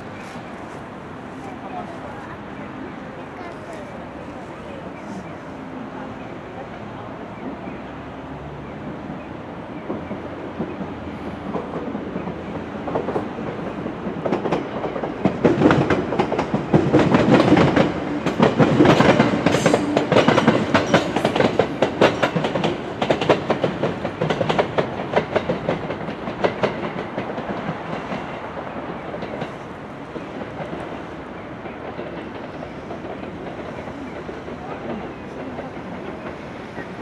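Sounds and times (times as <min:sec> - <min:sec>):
train wheels clicking over track: 0:08.6 - 0:37.0.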